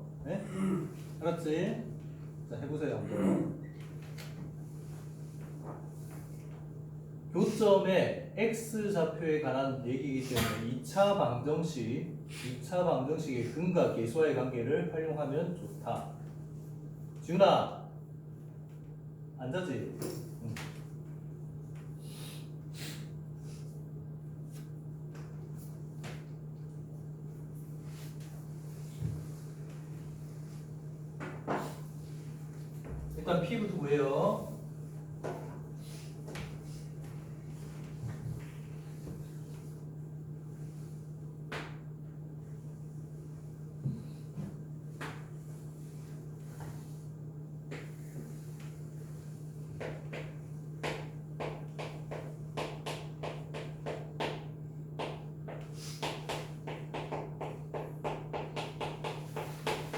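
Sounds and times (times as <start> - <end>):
low hum of room equipment: 0.0 - 59.9.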